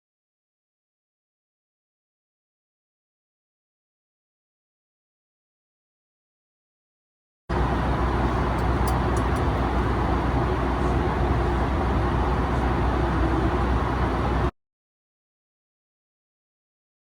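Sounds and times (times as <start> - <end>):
jet airliner cabin noise: 7.5 - 14.5.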